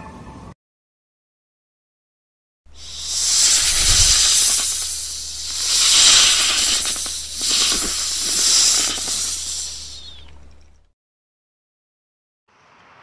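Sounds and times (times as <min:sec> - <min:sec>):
snake hissing: 0:02.7 - 0:10.6.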